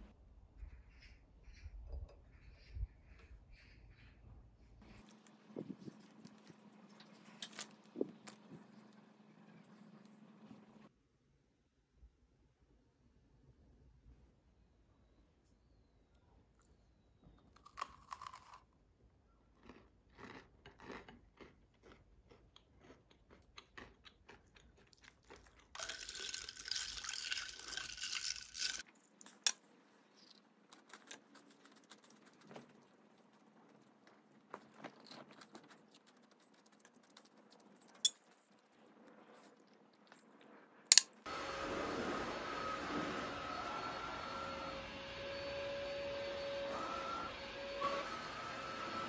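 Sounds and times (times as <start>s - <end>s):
crunchy chewing: 4.8s - 10.1s, 17.4s - 40.9s
vacuum cleaner whine: 41.3s - 49.0s.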